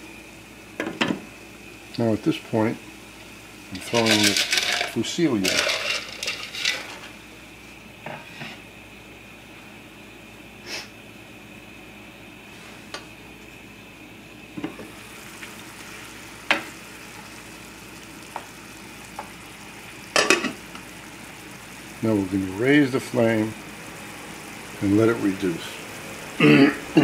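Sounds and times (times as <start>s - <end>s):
food sizzling in a skillet: 0.0s - 8.7s, 14.4s - 27.0s.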